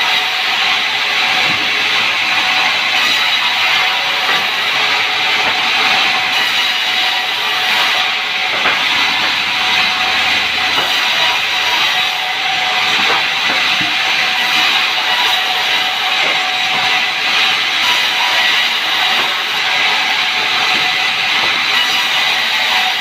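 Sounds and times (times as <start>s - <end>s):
saw cutting through a log: 0.0s - 23.0s.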